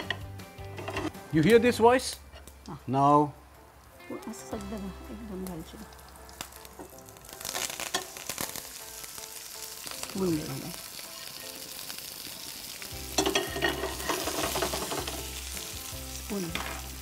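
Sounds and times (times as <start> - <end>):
crackling in pan: 0.0 - 17.0
okra sizzling in hot fat: 0.0 - 17.0.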